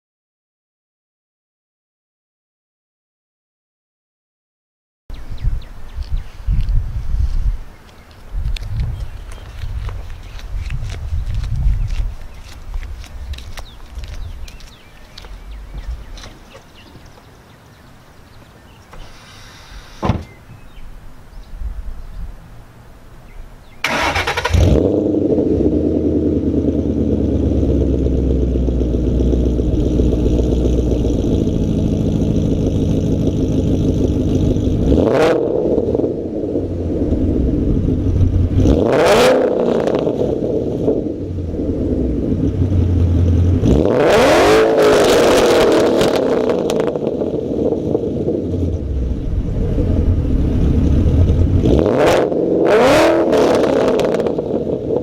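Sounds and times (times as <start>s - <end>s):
car engine starting: 23.7s - 55.0s
car engine revving: 23.8s - 55.0s
car engine idling: 23.9s - 35.1s, 35.8s - 38.7s, 40.3s - 43.8s, 45.2s - 51.8s.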